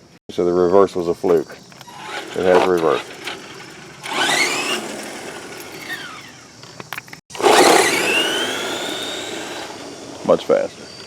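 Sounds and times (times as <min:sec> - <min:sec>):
electric motor whining: 0:01.2 - 0:11.0.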